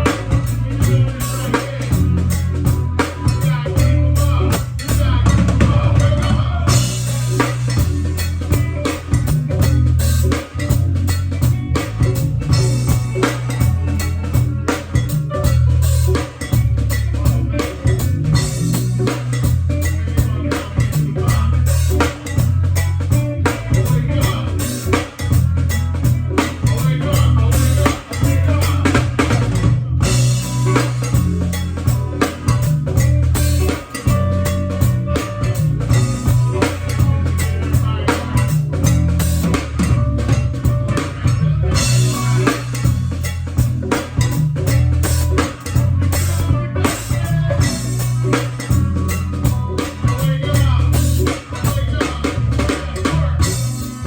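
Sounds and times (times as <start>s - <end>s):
drum kit beat: 0.0s - 54.0s
moving bass line: 0.0s - 54.0s.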